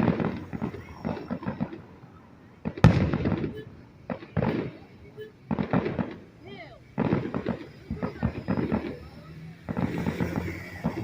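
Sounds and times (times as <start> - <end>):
fireworks crackling bursts: 0.0 - 11.0
loud firework bang: 2.6 - 4.8, 9.6 - 11.0.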